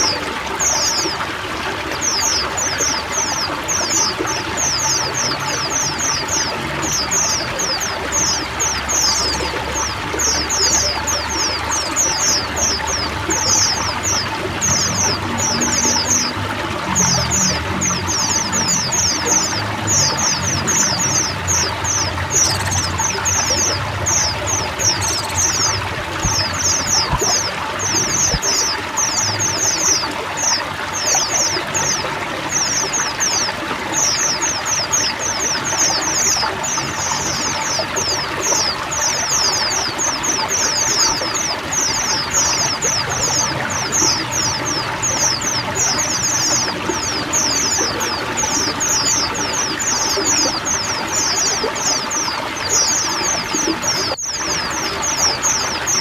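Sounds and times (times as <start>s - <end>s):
birds chirping and twittering: 0.0s - 56.0s
running water rushing: 0.0s - 56.0s.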